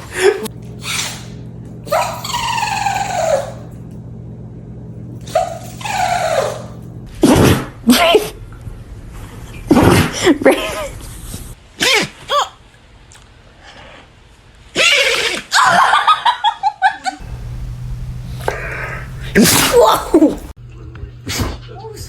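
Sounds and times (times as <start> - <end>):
dog sneezing: 17.3 - 20.5.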